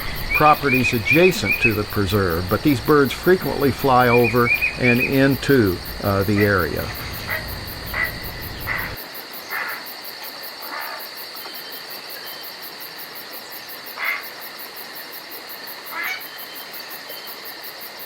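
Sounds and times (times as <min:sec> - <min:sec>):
short insect chirps: 0:00.0 - 0:09.0
crickets and insects chorus: 0:00.0 - 0:18.0.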